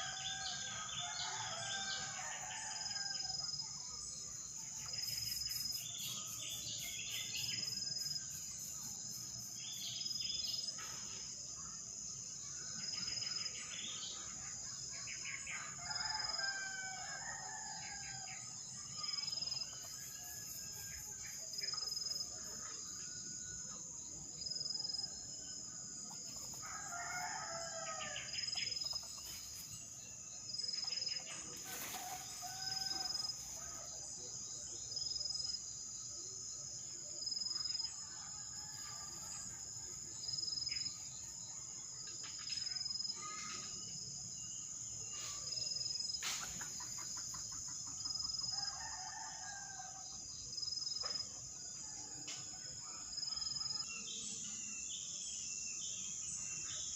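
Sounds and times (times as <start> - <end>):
rooster crowing: 26.6 - 28.3, 31.7 - 33.4.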